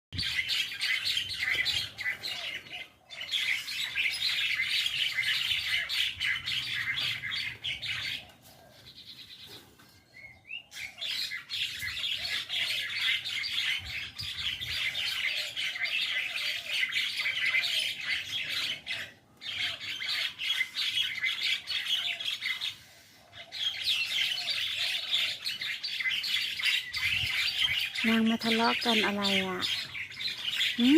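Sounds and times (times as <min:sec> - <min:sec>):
flock of mynas chattering: 0:27.8 - 0:30.9.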